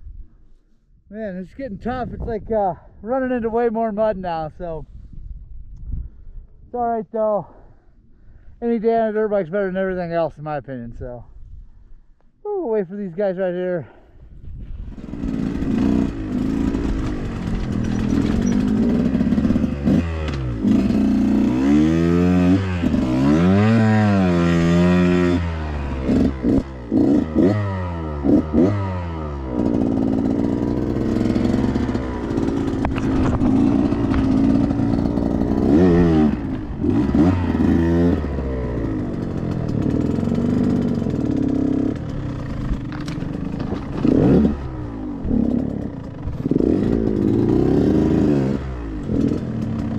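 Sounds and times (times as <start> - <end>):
dirt bike engine revving: 14.8 - 49.9
rattling clatter: 16.5 - 19.7, 39.2 - 47.4.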